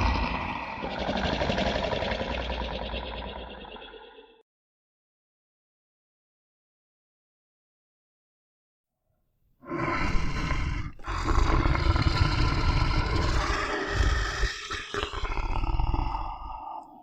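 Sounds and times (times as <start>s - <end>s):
large animal rough call: 0.0s - 4.4s, 9.6s - 16.9s.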